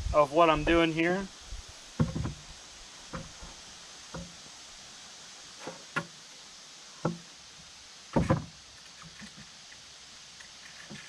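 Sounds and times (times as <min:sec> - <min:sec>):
wooden knocks: 0:02.0 - 0:02.5, 0:03.1 - 0:04.4, 0:08.2 - 0:08.5.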